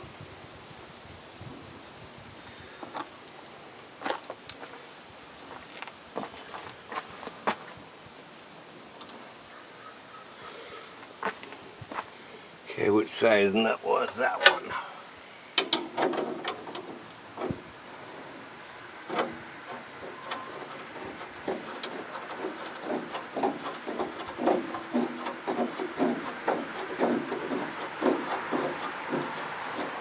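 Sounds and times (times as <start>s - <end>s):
hand tools clicking on metal: 14.0s - 14.8s, 15.6s - 17.6s, 19.1s - 30.0s.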